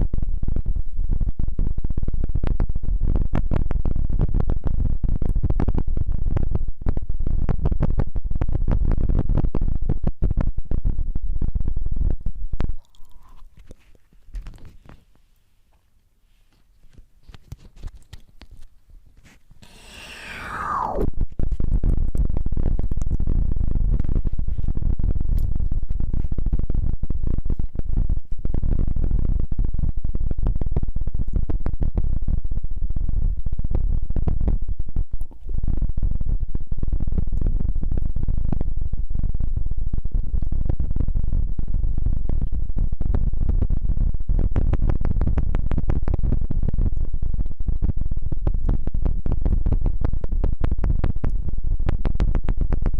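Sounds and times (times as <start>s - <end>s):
scrubbing and crackling at microphone: 0.0s - 15.5s, 16.3s - 19.6s, 20.8s - 52.9s
rubbing on microphone: 13.0s - 15.1s, 16.2s - 19.5s, 24.0s - 24.8s
low rumble: 19.8s - 24.0s.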